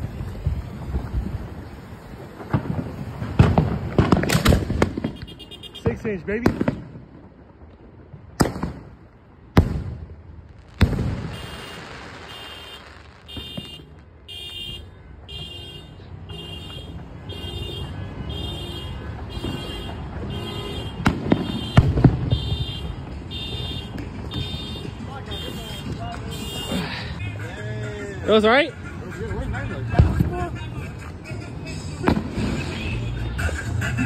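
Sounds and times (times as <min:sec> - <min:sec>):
firework bangs: 0:00.0 - 0:15.4, 0:16.8 - 0:26.7, 0:32.0 - 0:33.1.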